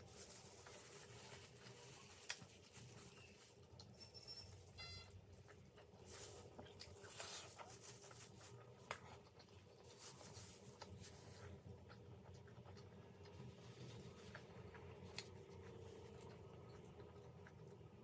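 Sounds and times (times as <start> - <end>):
person chewing food: 5.2 - 18.0.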